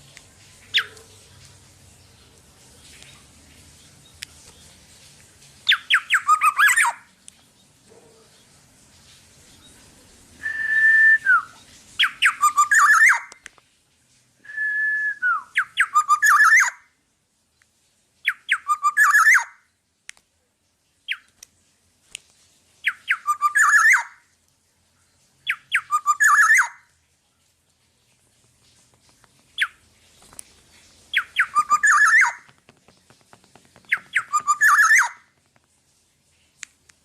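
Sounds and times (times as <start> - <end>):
oriole singing fluting whistles: 5.7 - 7.0, 10.4 - 13.3, 14.4 - 16.8, 18.3 - 19.5, 23.1 - 24.2, 25.5 - 26.8, 31.2 - 32.4, 33.9 - 35.2.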